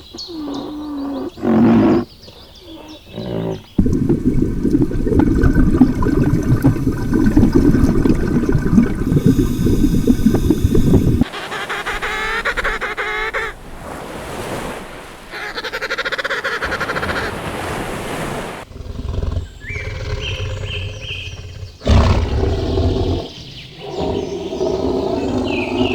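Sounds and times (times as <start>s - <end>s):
poultry rapid pulsing calls: 10.7s - 13.6s.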